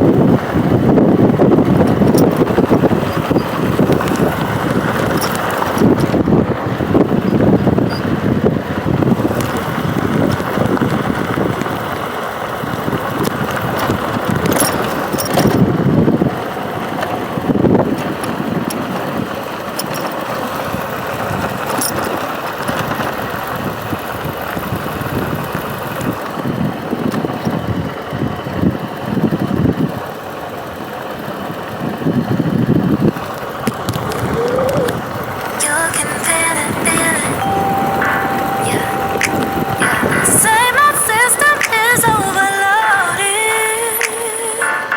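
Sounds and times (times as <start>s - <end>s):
wind buffeting microphone: 0.0s - 30.1s, 30.8s - 43.5s
vehicle and road noise: 0.0s - 44.9s.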